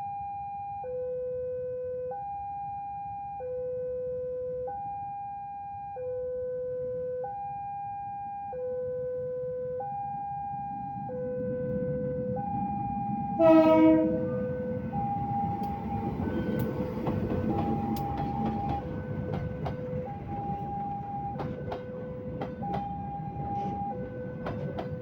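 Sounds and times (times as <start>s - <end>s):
two-tone warning signal: 2.0s - 11.4s, 12.2s - 25.0s
approaching train rumble: 10.4s - 25.0s.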